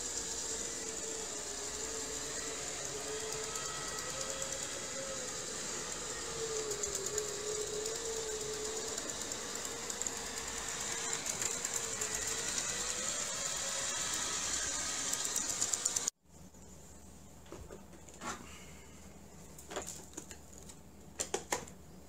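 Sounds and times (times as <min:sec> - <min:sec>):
floor cleaner motor whine: 0:00.0 - 0:16.2.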